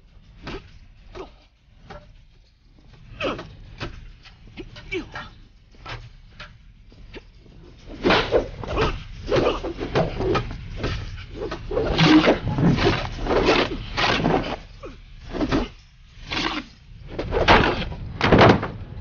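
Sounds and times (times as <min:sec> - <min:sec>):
wooden staffs swishing and clacking: 0:00.0 - 0:18.0.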